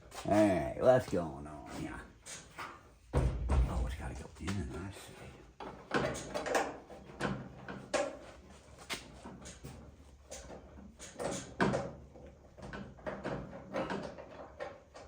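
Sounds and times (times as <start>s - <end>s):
tools knocking on metal door: 3.1s - 4.1s.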